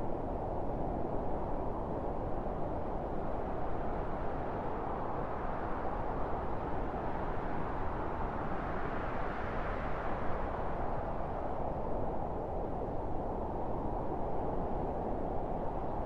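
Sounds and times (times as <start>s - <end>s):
wind blowing steadily: 0.0s - 16.0s.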